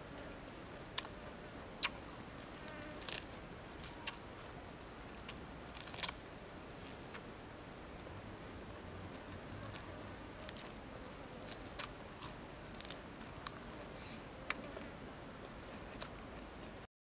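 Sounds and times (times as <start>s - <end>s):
faint steady hiss: 0.0s - 16.9s
person chewing crisp greens: 1.8s - 4.2s, 5.1s - 7.3s, 9.1s - 13.7s, 14.5s - 16.8s.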